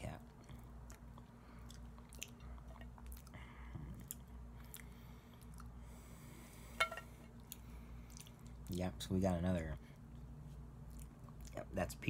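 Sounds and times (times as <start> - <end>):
steady low hum: 0.0 - 12.0
close-up chewing of chewy food: 0.2 - 6.0, 7.4 - 8.7, 10.1 - 11.7.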